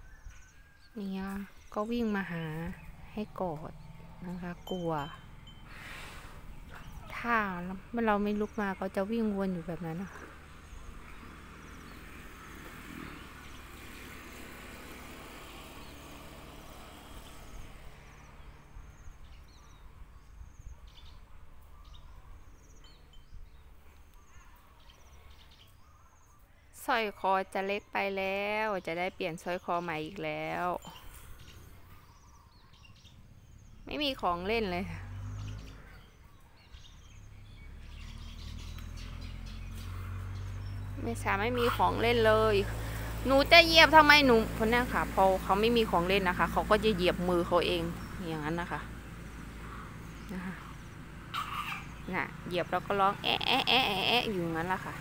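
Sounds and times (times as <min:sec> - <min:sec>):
small birds chirping: 0:00.0 - 0:55.0
steady low hum: 0:01.4 - 0:23.9, 0:39.0 - 0:55.0.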